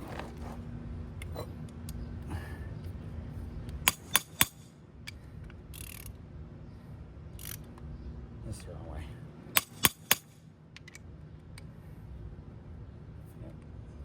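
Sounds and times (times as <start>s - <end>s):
ratchet wrench clicks: 3.9s - 4.7s, 5.4s - 6.2s, 7.4s - 7.7s, 9.6s - 11.0s.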